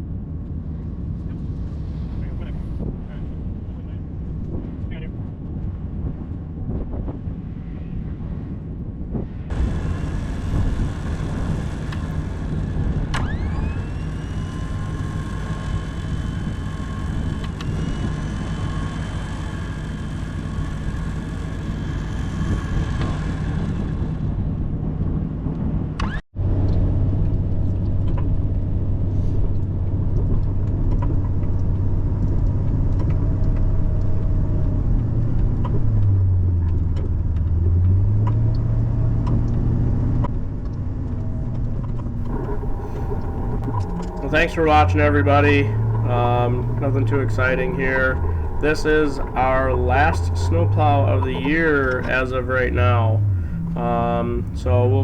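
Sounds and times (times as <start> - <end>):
thin rising whine: 9.5 - 24.4, 42.2 - 55.0
truck engine running: 9.5 - 25.5, 40.9 - 55.0.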